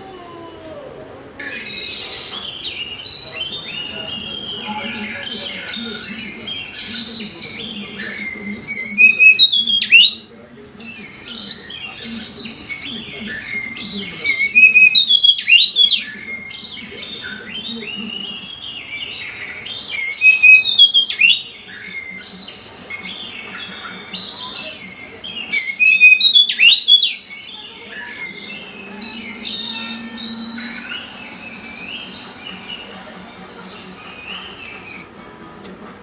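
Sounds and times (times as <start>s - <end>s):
songbirds chirping and singing: 0.0s - 36.0s.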